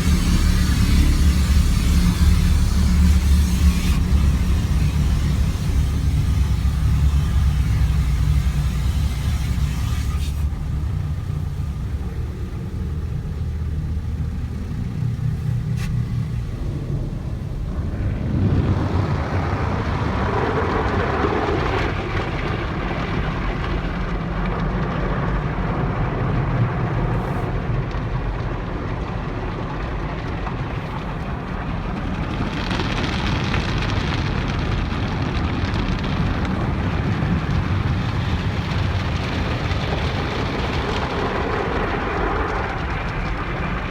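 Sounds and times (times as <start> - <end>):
water spray on car body: 0.0 - 17.6, 26.4 - 27.6
car wash rumble: 0.0 - 43.9.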